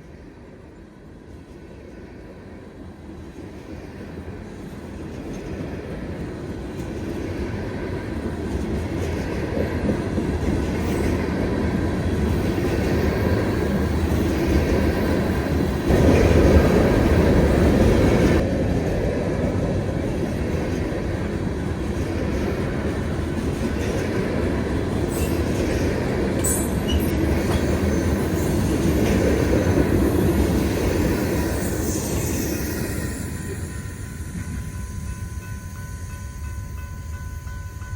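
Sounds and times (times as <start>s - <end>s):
freight train wheels rumbling: 0.0s - 37.9s
high wheel squeals: 29.7s - 37.0s.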